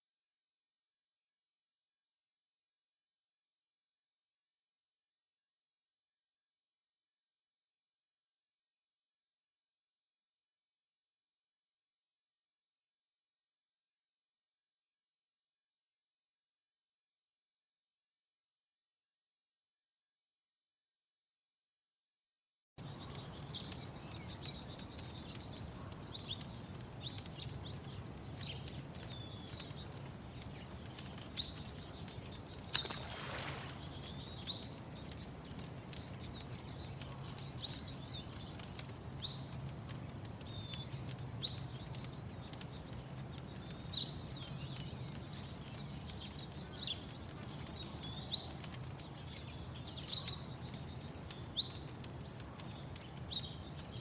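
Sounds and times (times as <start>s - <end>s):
small bird chirping: 22.8s - 54.0s.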